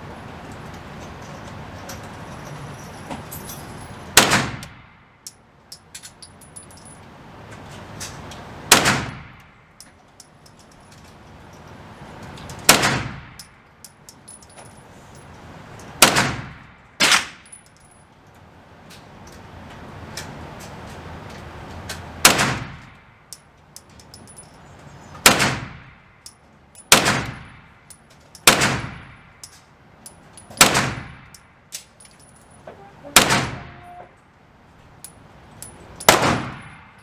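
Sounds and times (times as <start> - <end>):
echoing gunshots: 4.2 - 4.8, 8.7 - 9.4, 16.0 - 17.4, 22.2 - 22.8, 25.2 - 25.9, 26.9 - 27.4, 28.5 - 29.1, 30.6 - 31.2, 33.2 - 33.7, 36.1 - 36.9.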